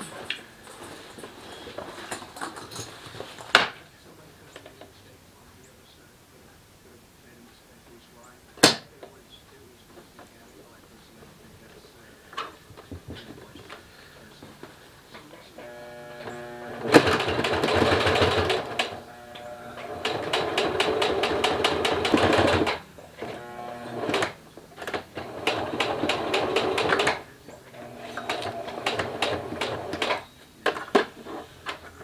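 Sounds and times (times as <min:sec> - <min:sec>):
sewing machine motor hum: 0:15.6 - 0:30.3
sewing machine stitching: 0:15.6 - 0:32.0.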